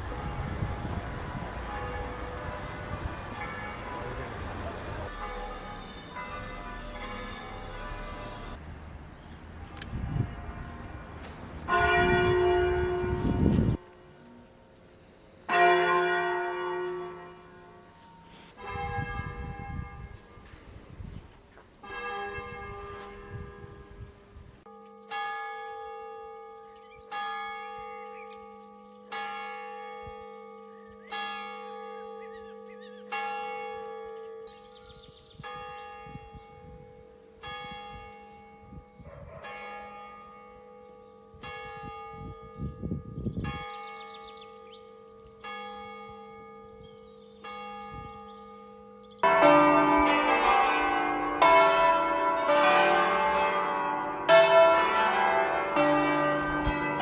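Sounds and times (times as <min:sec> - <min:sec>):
church bell tolling: 0:00.0 - 0:08.6, 0:11.6 - 0:14.8, 0:15.5 - 0:20.6, 0:21.8 - 0:24.0, 0:24.6 - 0:34.8, 0:35.4 - 0:42.8, 0:43.4 - 0:57.0
several bells ringing together: 0:00.0 - 0:08.6, 0:43.4 - 0:57.0.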